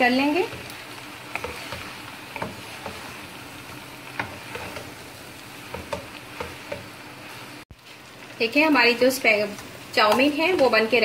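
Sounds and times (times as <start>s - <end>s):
noodles sizzling in a pan: 0.0s - 11.0s
spatula knocking on pan: 5.7s - 6.9s.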